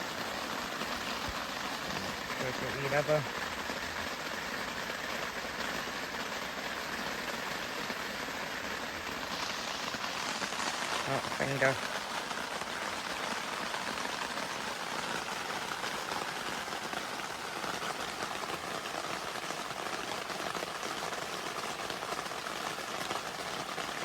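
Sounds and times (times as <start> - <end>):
heavy rain on tent fabric: 0.0 - 24.0.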